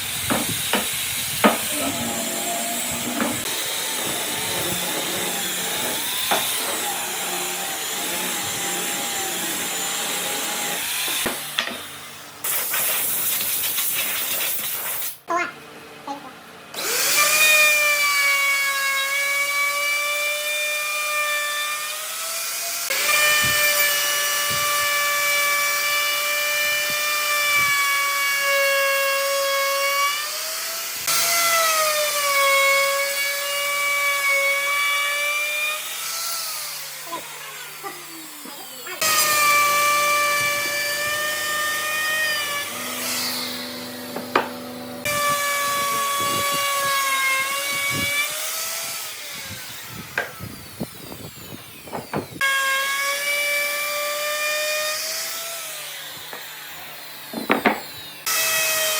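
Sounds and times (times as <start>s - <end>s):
power tool motor whining: 0.0s - 11.6s, 16.8s - 20.2s, 30.1s - 58.9s.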